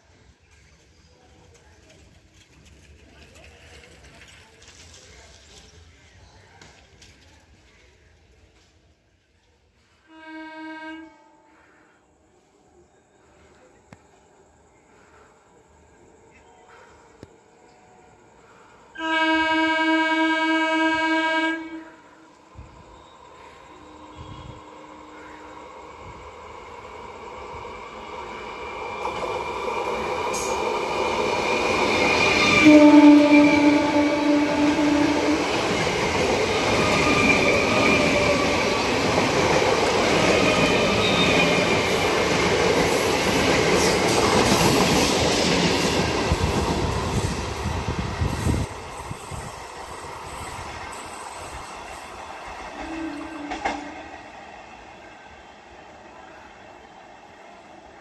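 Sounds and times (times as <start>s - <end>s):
train passing with wheel noise: 0.0s - 58.0s
train whine: 9.8s - 58.0s
distant train horn: 10.0s - 12.0s, 18.5s - 25.8s, 32.4s - 35.8s, 52.7s - 54.3s
train horn blast: 10.1s - 12.0s, 19.0s - 22.4s, 23.4s - 25.6s, 32.5s - 35.6s, 52.8s - 54.1s.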